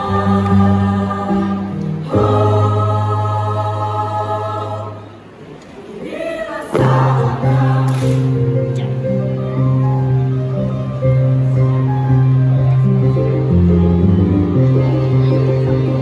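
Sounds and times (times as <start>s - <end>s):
choir singing chords: 0.0s - 11.2s.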